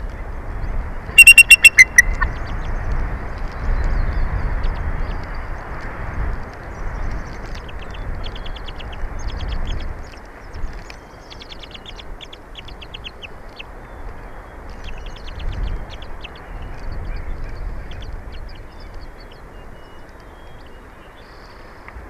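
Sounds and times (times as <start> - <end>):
eagles chirping: 1.2 - 2.6.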